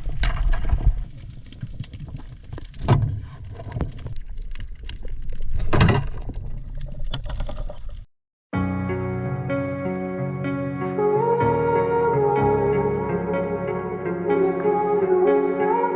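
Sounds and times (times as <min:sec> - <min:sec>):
water splashing and sloshing: 0:00.0 - 0:08.1
water swishes: 0:00.0 - 0:08.1.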